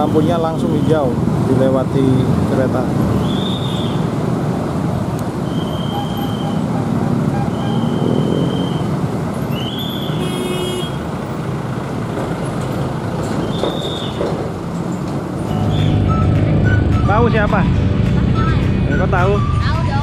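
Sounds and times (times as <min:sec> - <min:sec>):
electric train rumbling on track: 0:00.0 - 0:20.0
short high tones: 0:15.5 - 0:19.8.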